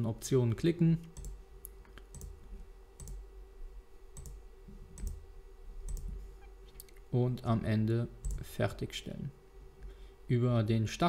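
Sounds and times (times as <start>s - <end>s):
faint electrical hum: 0.0s - 11.0s
computer mouse clicking: 1.1s - 2.4s, 3.0s - 3.2s, 4.2s - 4.4s, 5.0s - 5.2s, 5.9s - 6.2s, 8.2s - 8.4s.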